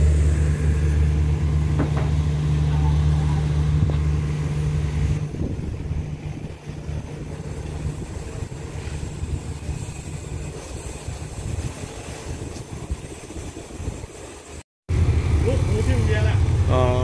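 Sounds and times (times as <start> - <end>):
diesel engine hum: 0.0 - 10.5, 14.9 - 17.0
train rumble: 0.0 - 17.0.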